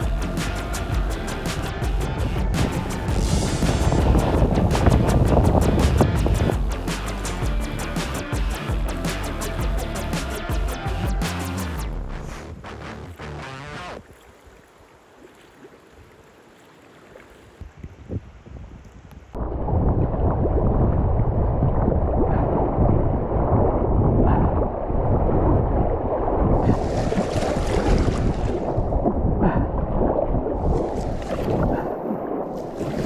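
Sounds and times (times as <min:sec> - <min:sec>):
wind buffeting microphone: 0:00.0 - 0:07.6, 0:17.6 - 0:33.0
water splashing: 0:00.0 - 0:11.8, 0:14.0 - 0:17.9, 0:26.1 - 0:33.0.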